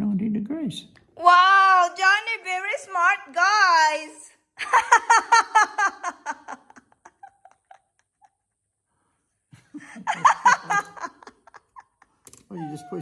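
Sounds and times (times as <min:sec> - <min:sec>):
person laughing: 0:04.6 - 0:08.0, 0:09.7 - 0:12.2.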